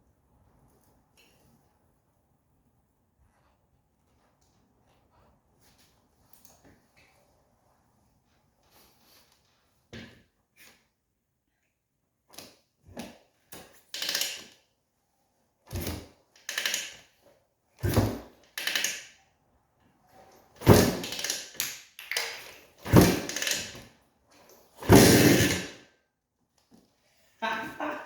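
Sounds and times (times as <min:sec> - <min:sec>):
engine kick-start attempts: 0:24.8 - 0:25.7.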